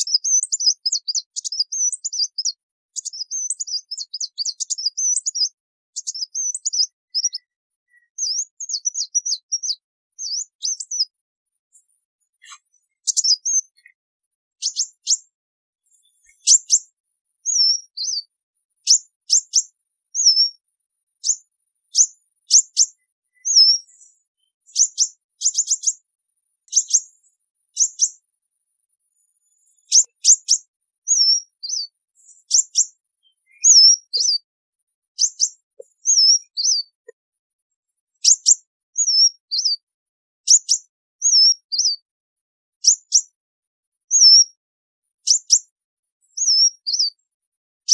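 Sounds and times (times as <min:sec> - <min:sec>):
bird chips and calls: 0:00.0 - 0:28.3, 0:29.0 - 0:34.5, 0:35.1 - 0:37.2, 0:38.0 - 0:42.1, 0:42.8 - 0:43.4, 0:44.1 - 0:44.6, 0:45.2 - 0:47.3.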